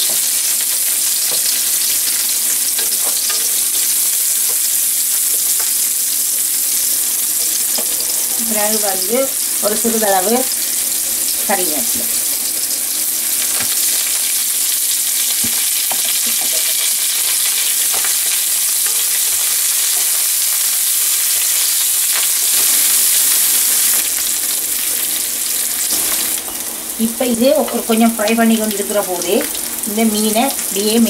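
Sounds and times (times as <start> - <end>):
vegetables sizzling in oil: 0.0 - 31.0
spatula tapping a pan: 15.4 - 16.8.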